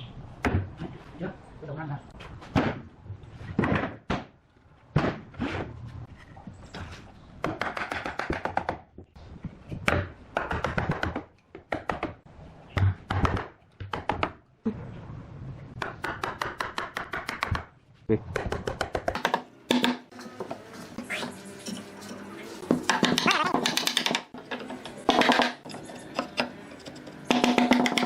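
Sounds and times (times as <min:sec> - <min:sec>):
hand tools knocking on wood: 0:22.7 - 0:24.3, 0:27.3 - 0:28.0.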